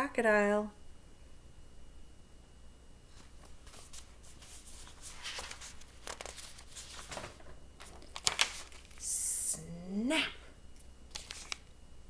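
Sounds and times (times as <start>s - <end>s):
low steady hum: 0.0s - 12.0s
paper pages rustling: 3.1s - 9.0s, 10.8s - 11.7s.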